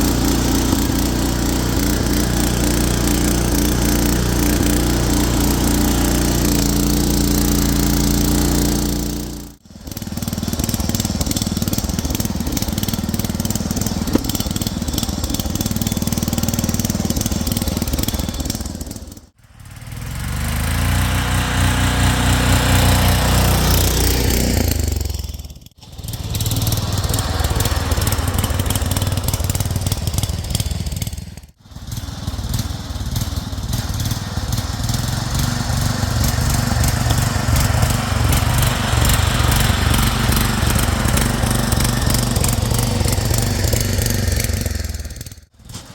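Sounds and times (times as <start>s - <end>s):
garden tractor engine running: 0.0s - 45.9s.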